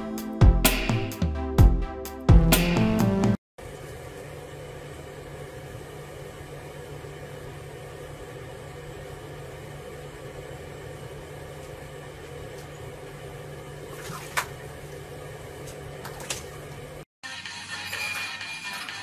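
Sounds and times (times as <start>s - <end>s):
owl splashing in sink water: 13.9s - 14.7s.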